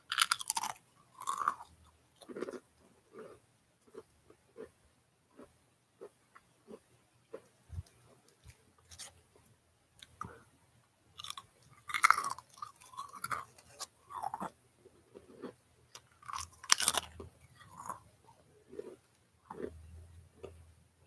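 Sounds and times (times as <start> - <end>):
chewing crunchy chips: 0.0 - 4.8, 11.2 - 20.6.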